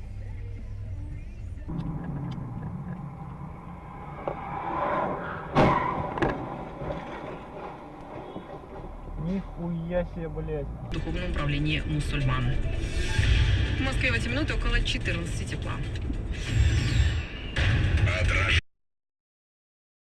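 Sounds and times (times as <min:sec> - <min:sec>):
car engine and road noise: 0:00.0 - 0:17.5
sharp bang: 0:01.7 - 0:08.6.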